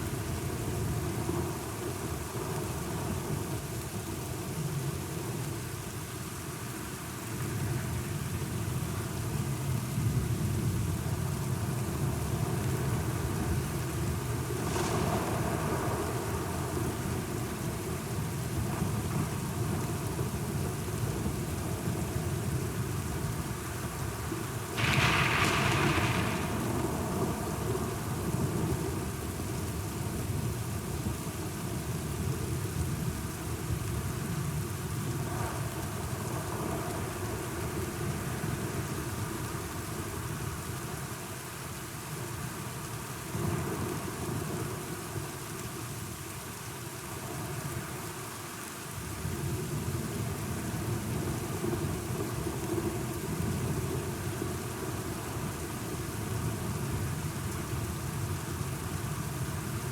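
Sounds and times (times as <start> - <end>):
heavy rain: 0.0 - 59.9
low thunder rolling: 24.8 - 29.0.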